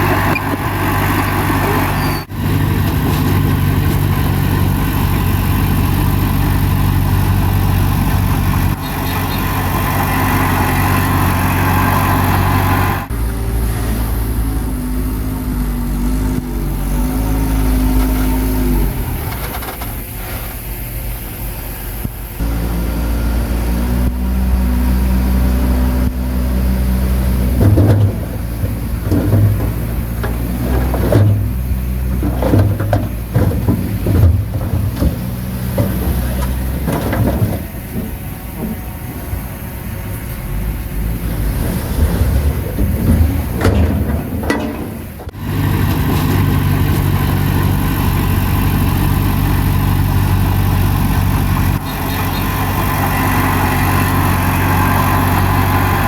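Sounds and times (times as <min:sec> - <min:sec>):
heavy diesel machine running: 0:00.0 - 0:56.0
metal clanks and knocks: 0:27.2 - 0:39.4, 0:42.0 - 0:47.6.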